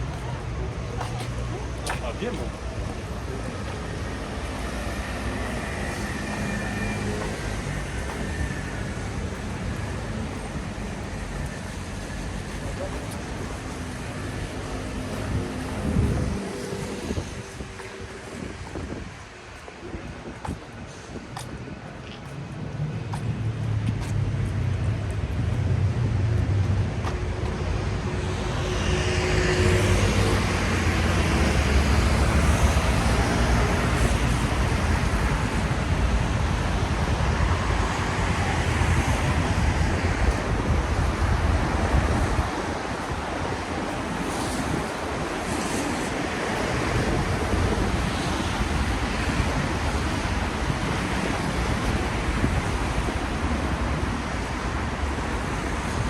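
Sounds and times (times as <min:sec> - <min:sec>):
tyres hissing on wet road: 0:00.2 - 0:20.2, 0:28.8 - 0:56.0.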